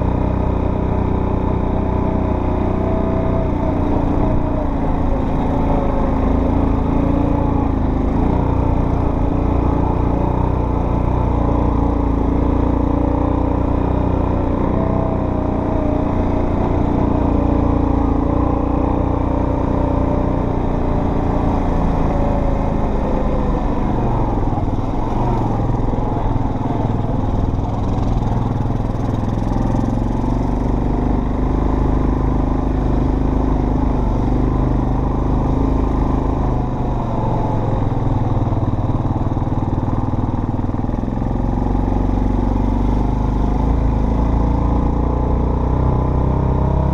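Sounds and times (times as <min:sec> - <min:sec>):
off-road vehicle engine running: 0:00.0 - 0:46.9.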